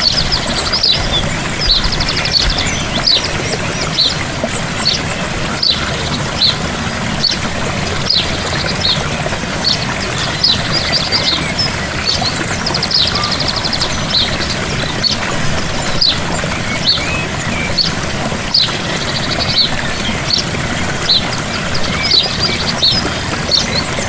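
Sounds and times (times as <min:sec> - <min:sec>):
bird trilling: 0:00.0 - 0:06.6, 0:08.0 - 0:15.2
birds chirping: 0:00.0 - 0:24.0
waterfall splashing: 0:00.0 - 0:24.0.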